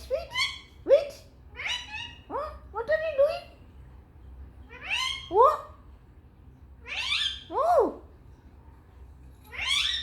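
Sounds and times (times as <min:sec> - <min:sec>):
parrot calling: 0:00.0 - 0:00.8, 0:01.5 - 0:02.6, 0:04.7 - 0:05.8, 0:06.8 - 0:08.0, 0:09.5 - 0:10.0.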